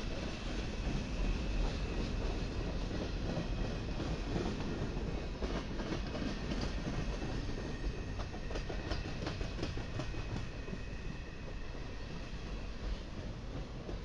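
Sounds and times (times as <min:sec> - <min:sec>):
train wheels rumbling on rails: 0:00.0 - 0:14.0
clickety-clack wheel clicks: 0:02.2 - 0:10.5.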